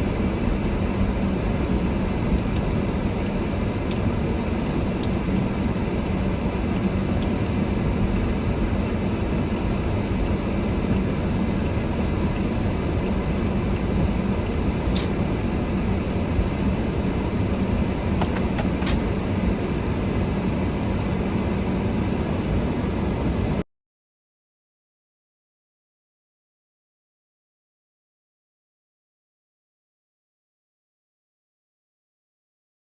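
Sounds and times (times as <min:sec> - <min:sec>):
car engine and road noise: 0:00.0 - 0:23.6.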